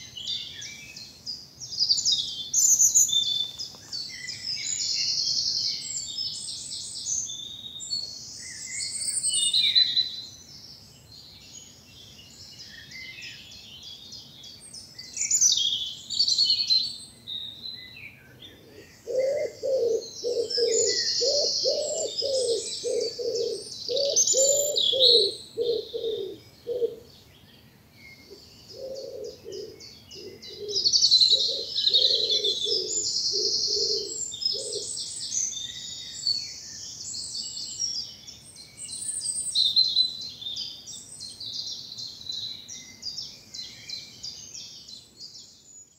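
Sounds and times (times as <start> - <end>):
songbirds singing: 0.0 - 45.9
low repeated bird call: 15.9 - 27.2, 28.2 - 38.1.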